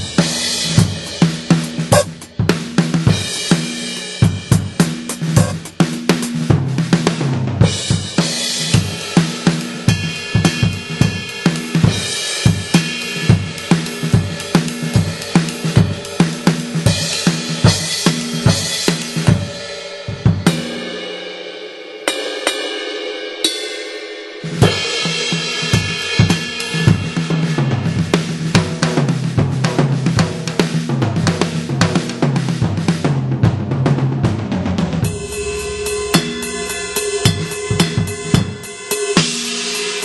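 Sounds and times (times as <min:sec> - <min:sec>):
cymbals ringing: 0:00.0 - 0:05.7, 0:35.0 - 0:40.0
hi-hat: 0:00.0 - 0:06.4, 0:35.0 - 0:40.0
snare drum: 0:00.0 - 0:19.4.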